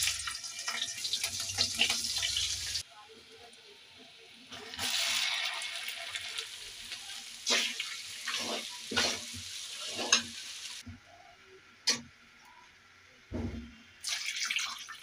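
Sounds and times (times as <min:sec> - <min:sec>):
potatoes sizzling in oil: 0:00.0 - 0:02.8, 0:04.5 - 0:10.8
steel ladle scraping a pan: 0:07.5 - 0:10.4.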